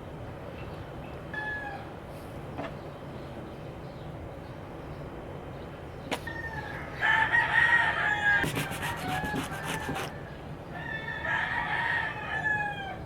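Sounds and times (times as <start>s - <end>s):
rooster crowing: 6.3s - 13.0s.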